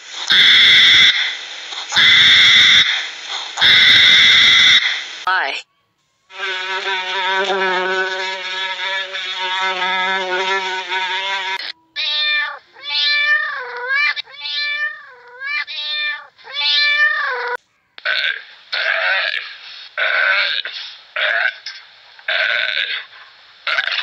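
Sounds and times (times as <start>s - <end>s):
honeybees buzzing: 6.3s - 11.8s
kittens meowing: 12.0s - 17.6s.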